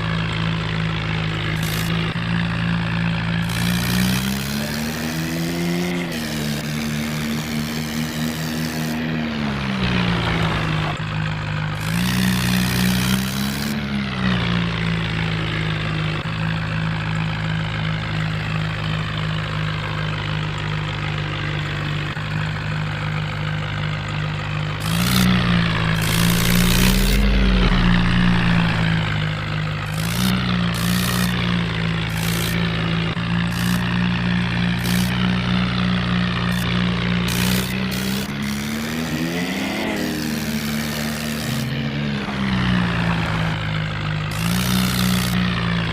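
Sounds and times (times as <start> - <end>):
tractor engine idling: 0.0 - 4.0, 9.6 - 13.1, 14.6 - 38.6, 41.8 - 45.9.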